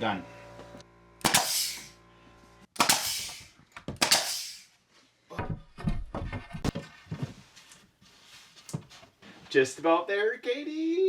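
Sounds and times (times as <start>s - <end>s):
nail gun air hiss: 1.2s - 2.0s, 2.8s - 4.7s.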